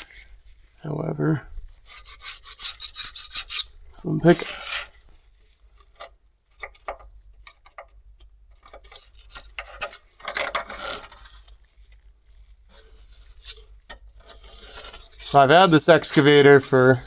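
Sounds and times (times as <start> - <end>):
scraper scraping grease off metal: 1.9 - 5.0, 8.6 - 11.6, 12.7 - 17.0.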